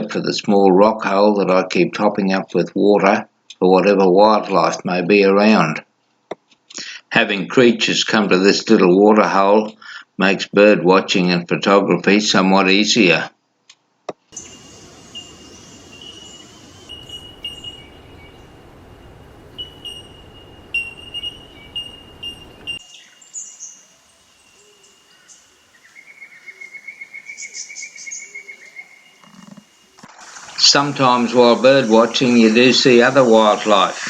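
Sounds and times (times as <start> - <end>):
birds chirping: 14.3 - 34.0
steady high-pitched tone: 14.4 - 22.9
fast bird trill: 14.4 - 29.2.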